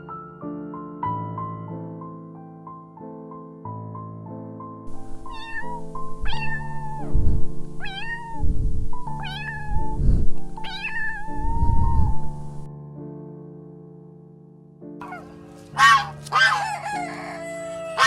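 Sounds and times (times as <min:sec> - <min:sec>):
gentle piano music: 0:00.0 - 0:18.0
cat meowing: 0:04.9 - 0:10.0, 0:10.6 - 0:12.4, 0:15.0 - 0:18.0.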